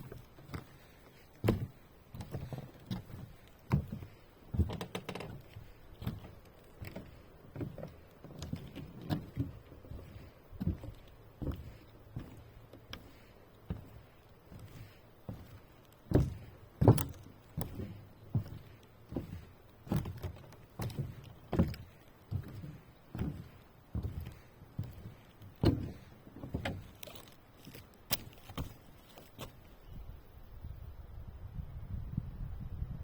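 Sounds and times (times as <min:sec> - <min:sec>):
uneven knocks and thuds: 0:13.7 - 0:26.9.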